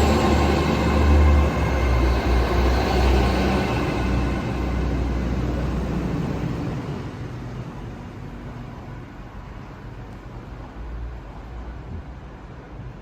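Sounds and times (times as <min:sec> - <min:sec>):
train passing with rumble and whine: 0:00.0 - 0:13.0.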